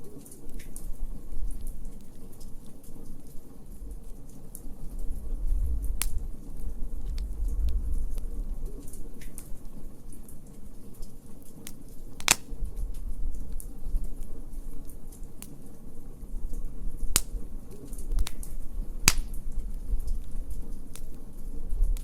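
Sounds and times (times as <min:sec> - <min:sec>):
wood fire crackling: 0:00.0 - 0:22.0
low rumble: 0:05.0 - 0:09.2.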